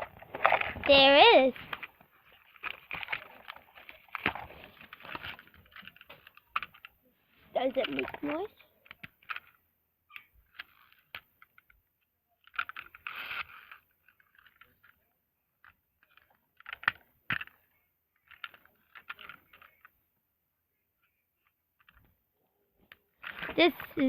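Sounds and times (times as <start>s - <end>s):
plastic toy truck rattling: 0.0s - 6.9s, 7.6s - 9.6s, 12.4s - 15.0s, 18.2s - 19.9s.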